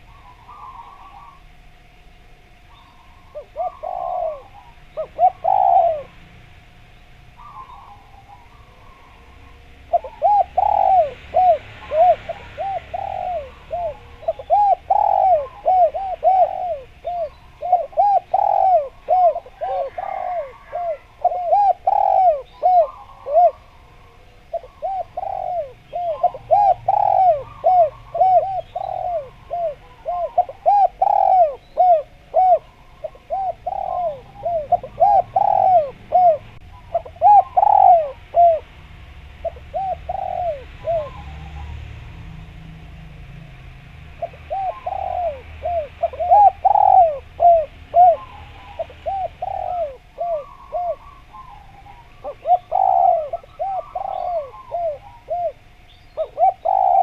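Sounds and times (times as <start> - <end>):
dove cooing: 0.0 - 43.4, 44.0 - 57.0.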